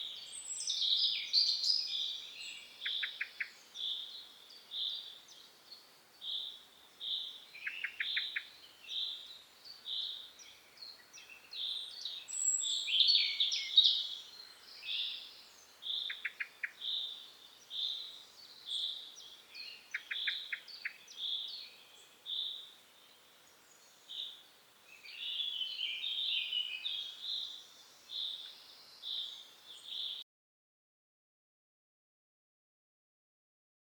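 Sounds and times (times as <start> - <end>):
birds chirping and trilling: 0.0 - 30.2.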